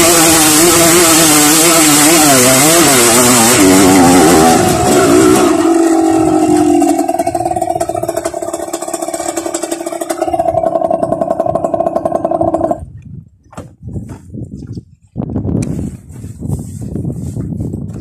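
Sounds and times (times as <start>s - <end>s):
dirt bike engine running: 0.0s - 14.3s.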